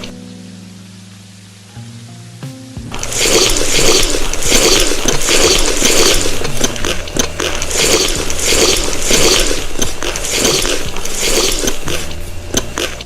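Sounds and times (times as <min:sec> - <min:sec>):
crunchy chewing: 0:02.9 - 0:13.0.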